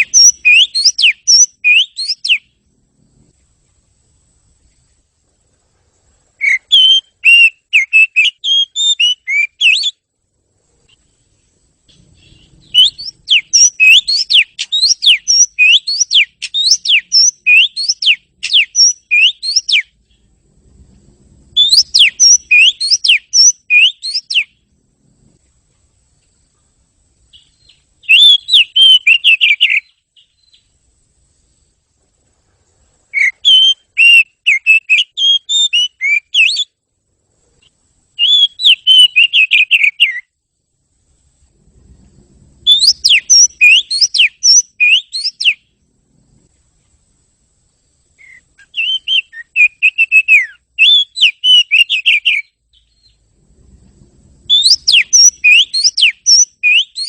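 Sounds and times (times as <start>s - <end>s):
bird singing whistled song: 0.0s - 2.6s, 6.4s - 10.0s, 11.9s - 20.3s, 21.5s - 24.6s, 27.3s - 30.8s, 33.1s - 36.8s, 38.2s - 40.4s, 42.6s - 45.7s, 48.2s - 53.2s, 54.5s - 57.0s.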